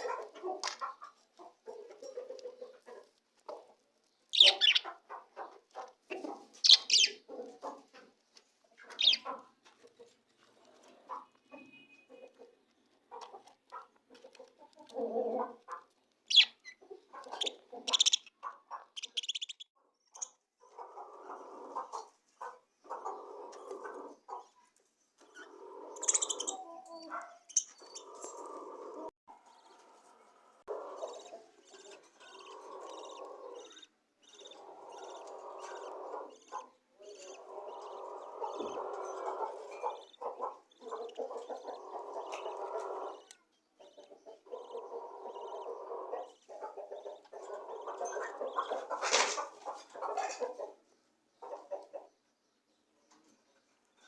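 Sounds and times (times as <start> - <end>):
budgies high chirps: 4.3 - 4.9, 6.6 - 7.2, 8.9 - 9.4, 16.3 - 20.4, 25.3 - 28.4, 30.7 - 50.6
budgies chattering: 4.4 - 4.9, 6.6 - 7.2, 9.0 - 9.4, 16.3 - 19.6, 25.3 - 26.6, 30.7 - 50.6.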